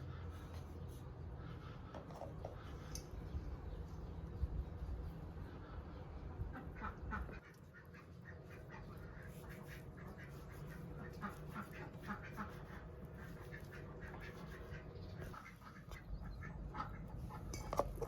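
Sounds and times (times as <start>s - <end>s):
farmyard fowl calling: 6.5s - 18.0s.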